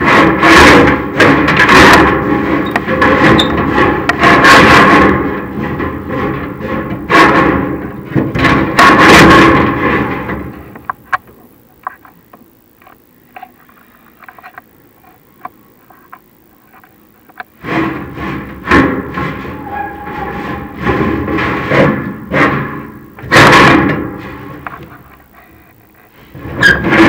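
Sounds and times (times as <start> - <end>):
camera scraping inside metal flue: 1.6 - 10.8, 17.6 - 27.0
faint clicks and taps: 10.8 - 17.6.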